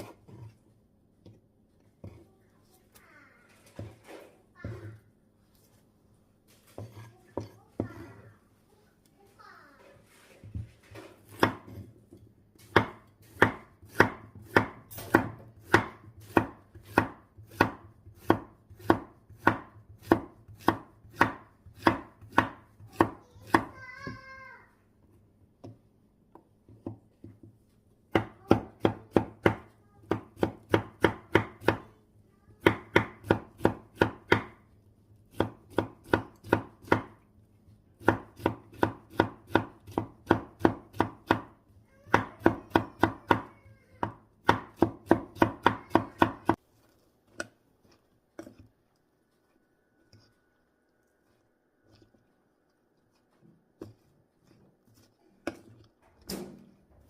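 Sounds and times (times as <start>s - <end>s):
knife chopping on cutting board: 6.7s - 8.1s, 10.5s - 24.2s, 26.7s - 31.9s, 32.6s - 34.7s, 35.3s - 37.2s, 38.0s - 46.6s, 53.8s - 55.9s.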